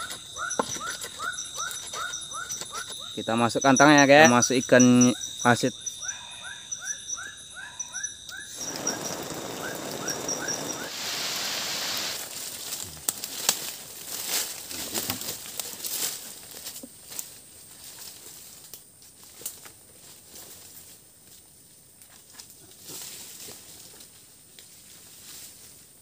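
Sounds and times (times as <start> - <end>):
short chirping call: 5.0 - 12.2
footsteps through undergrowth: 12.1 - 21.0
twigs crackling and snapping: 12.2 - 17.3.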